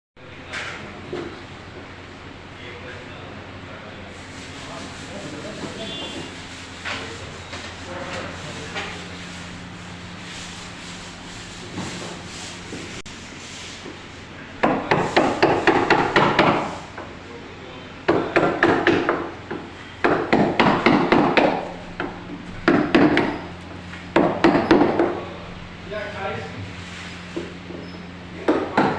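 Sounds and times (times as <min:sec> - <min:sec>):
hammer striking wood: 0:14.6 - 0:16.7, 0:18.1 - 0:23.5, 0:24.1 - 0:25.2.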